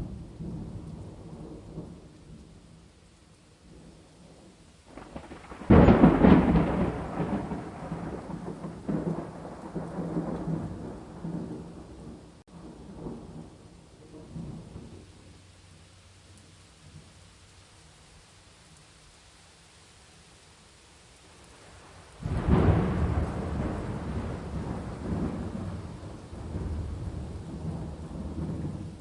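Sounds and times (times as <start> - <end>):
thunder rumbling: 0.0 - 2.9, 3.6 - 15.6, 21.5 - 29.0
steady rain: 0.0 - 29.0.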